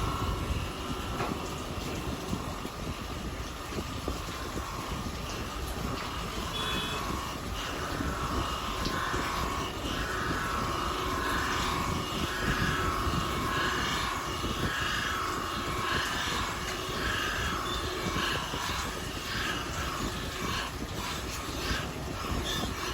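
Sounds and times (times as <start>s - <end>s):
surface grinder grinding metal: 0.0s - 22.9s.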